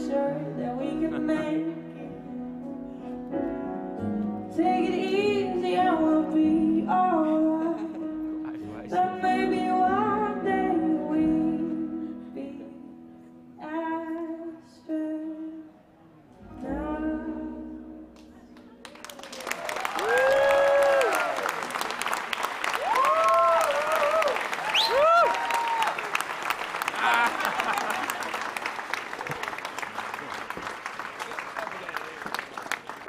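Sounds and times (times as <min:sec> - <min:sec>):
woman singing wordless phrases: 0:00.0 - 0:02.1, 0:04.5 - 0:08.1, 0:08.9 - 0:12.9, 0:13.6 - 0:15.8, 0:16.5 - 0:18.1.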